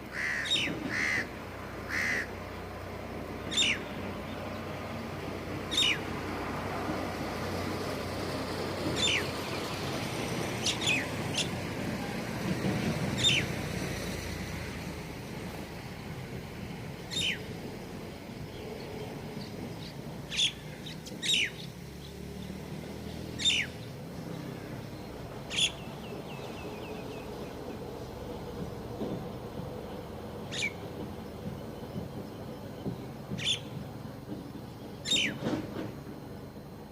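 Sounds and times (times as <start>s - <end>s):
small birds chirping: 3.4s - 4.8s, 5.6s - 6.1s, 8.8s - 9.8s, 10.4s - 11.7s, 13.2s - 13.6s, 17.0s - 28.7s, 29.8s - 35.5s.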